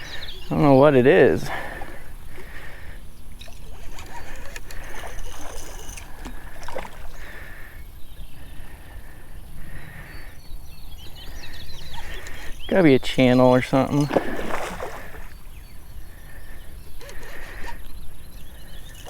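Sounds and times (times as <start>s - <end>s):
water splashing: 0.0s - 7.3s, 12.1s - 15.4s
fishing reel clicks and scrapes: 3.4s - 6.3s.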